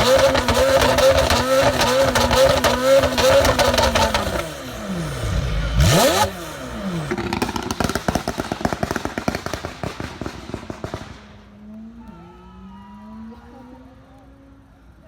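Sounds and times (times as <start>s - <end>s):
exhaust crackles and pops: 0.0s - 4.5s, 7.0s - 12.1s
car engine revving hard: 0.0s - 8.4s.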